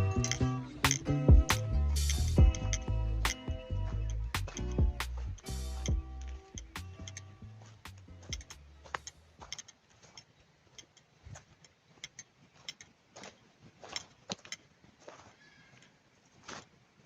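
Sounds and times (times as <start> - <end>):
song: 0.0 - 7.4.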